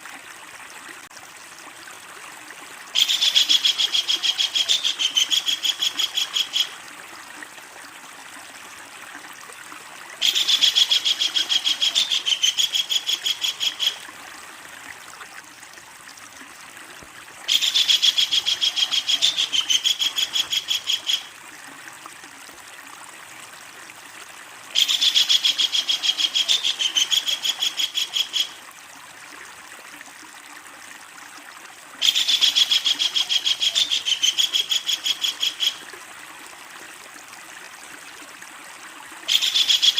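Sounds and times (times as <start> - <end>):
kingfisher rattling call: 10.2 - 14.0, 17.5 - 21.3.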